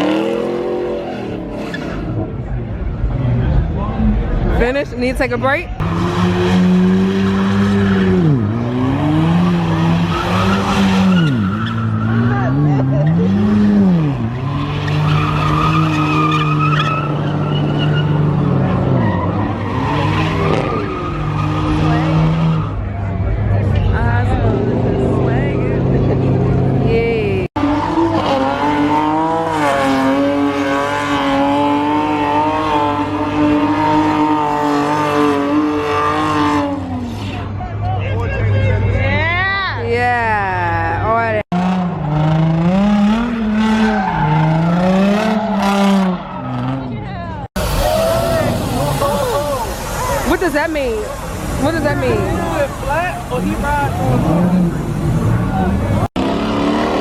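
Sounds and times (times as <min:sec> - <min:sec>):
car engine at high revs: 0:00.0 - 0:37.5, 0:41.0 - 0:57.0
tyres screeching: 0:07.1 - 0:22.8
tyres spinning hiss: 0:47.6 - 0:54.2.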